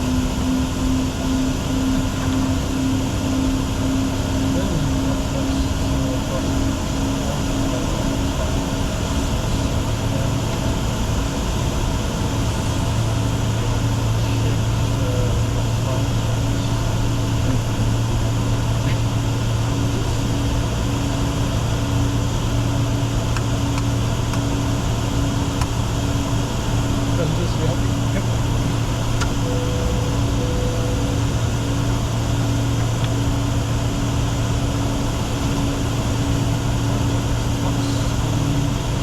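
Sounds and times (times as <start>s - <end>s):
low even hum: 0.0s - 39.0s.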